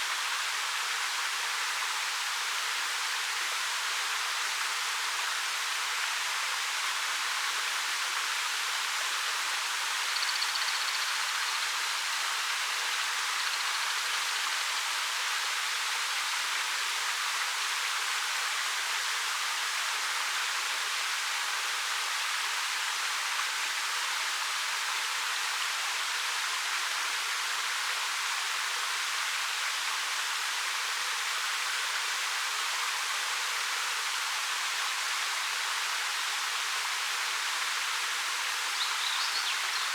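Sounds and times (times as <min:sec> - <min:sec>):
faint high chirp: 0:38.8 - 0:39.9.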